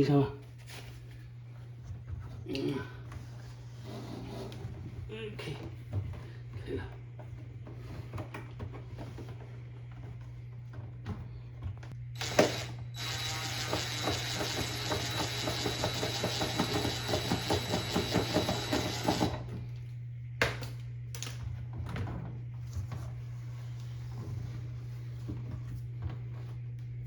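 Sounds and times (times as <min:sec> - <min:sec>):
small machine clicking and whining: 0:12.2 - 0:19.5.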